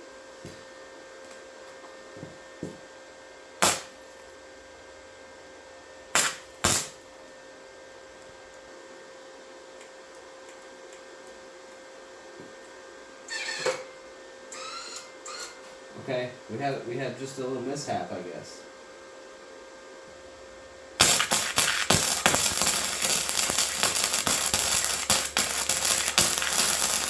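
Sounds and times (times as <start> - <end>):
welding arc crackling: 3.6 - 4.1, 6.1 - 7.0, 14.5 - 15.6, 21.0 - 27.0
welder humming: 3.6 - 4.4, 5.9 - 27.0.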